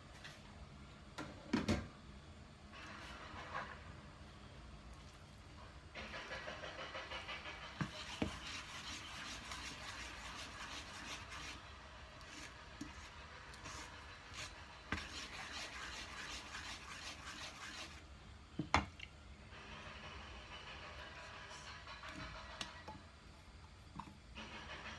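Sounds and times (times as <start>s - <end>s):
utensil scraping in a bowl: 6.0s - 18.1s.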